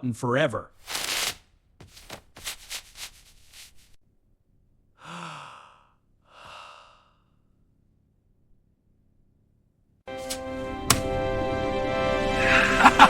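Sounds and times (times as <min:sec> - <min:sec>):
adhesive tape ripping off roll: 0:00.8 - 0:04.0
person sighing: 0:05.0 - 0:07.4, 0:12.3 - 0:13.0
breathy exhale: 0:05.0 - 0:07.5.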